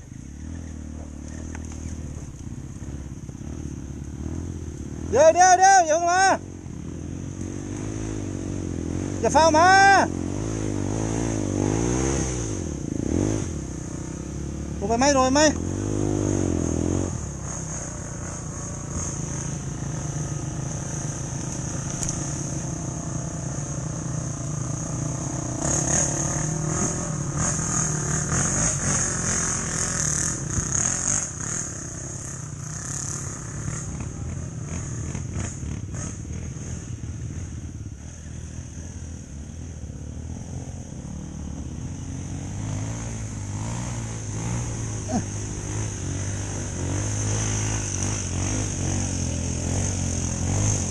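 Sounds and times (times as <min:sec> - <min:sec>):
dirt bike engine running: 0:00.0 - 0:50.9.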